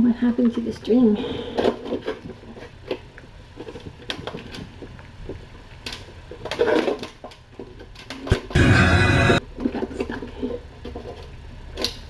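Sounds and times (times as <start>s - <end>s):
steady low hum: 8.3s - 9.4s.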